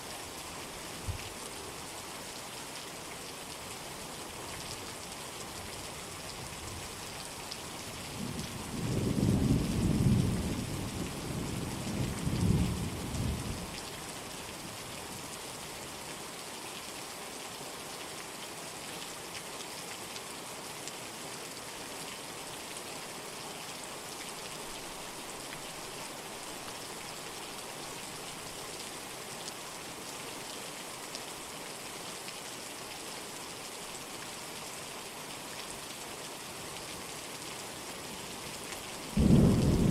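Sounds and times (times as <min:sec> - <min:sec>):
heavy rain: 0:00.0 - 0:39.9
thunder rumble: 0:39.2 - 0:39.9.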